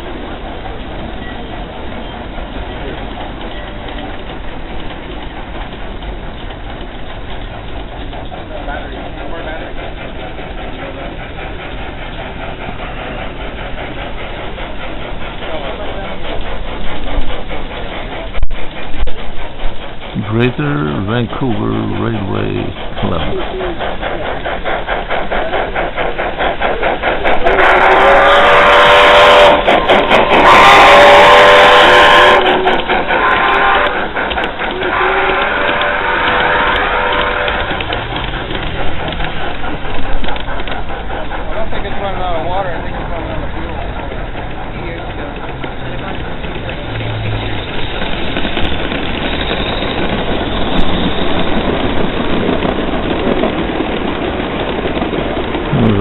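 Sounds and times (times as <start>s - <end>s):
steam locomotive chuffing: 0.0s - 56.0s
loud steam hiss with whistle tones: 8.4s - 43.6s, 45.7s - 53.8s.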